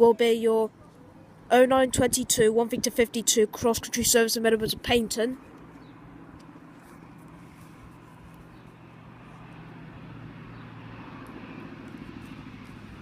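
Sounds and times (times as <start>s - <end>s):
diesel train engine hum: 3.0s - 13.0s.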